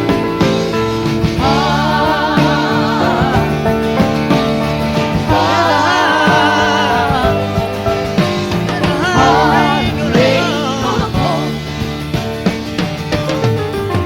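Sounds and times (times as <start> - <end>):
person singing with vibrato: 5.3 - 7.8, 8.6 - 11.8.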